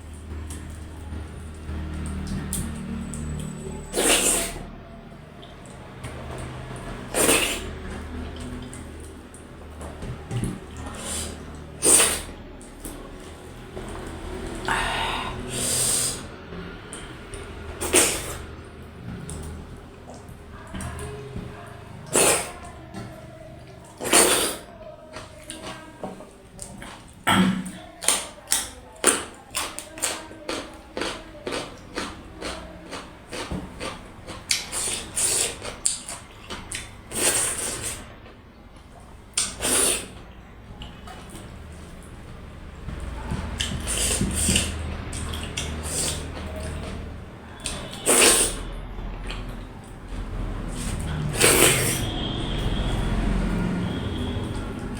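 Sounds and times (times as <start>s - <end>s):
person eating: 1.8s - 4.7s, 6.4s - 9.3s, 10.4s - 12.4s, 14.1s - 20.9s, 22.0s - 22.8s, 23.9s - 25.9s, 26.6s - 38.1s, 39.3s - 40.2s, 43.0s - 49.7s, 50.3s - 53.8s
sniffing and sucking: 3.8s - 4.7s, 7.0s - 7.8s, 10.8s - 12.4s, 14.5s - 16.4s, 17.8s - 18.6s, 22.0s - 22.7s, 24.0s - 24.7s, 34.6s - 35.8s, 37.1s - 38.1s, 39.4s - 40.2s, 43.6s - 44.9s, 45.6s - 46.5s, 47.7s - 48.8s, 50.7s - 53.6s
person chewing and smacking: 23.9s - 37.9s, 40.8s - 48.5s, 49.1s - 53.1s.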